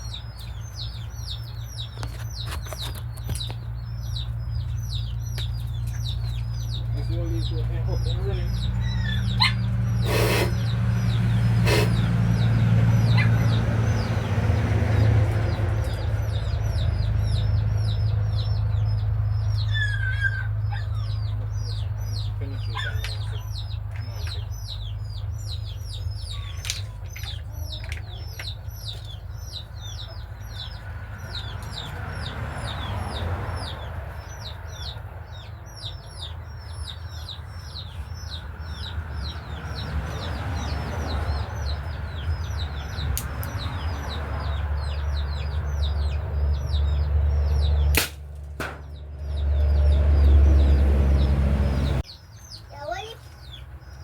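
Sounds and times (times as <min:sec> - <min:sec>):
birds chirping: 0:00.0 - 0:54.0
sharp clicks: 0:43.2 - 0:43.6.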